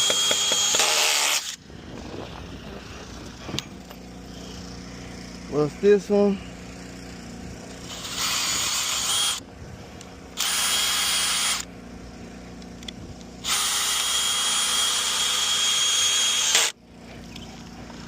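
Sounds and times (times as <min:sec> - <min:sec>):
cordless drill running: 0:00.0 - 0:01.6, 0:07.8 - 0:09.4, 0:10.3 - 0:11.7, 0:13.4 - 0:16.8.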